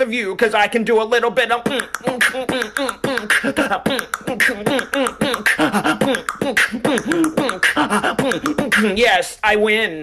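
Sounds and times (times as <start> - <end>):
vocal beatboxing: 1.2 - 9.2.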